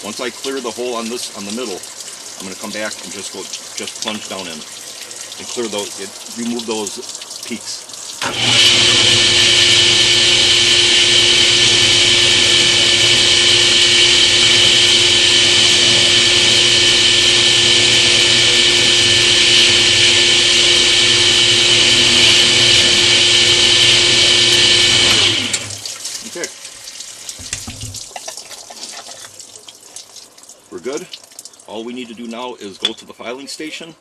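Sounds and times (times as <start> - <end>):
power tool grinding stone tile: 8.2 - 25.7.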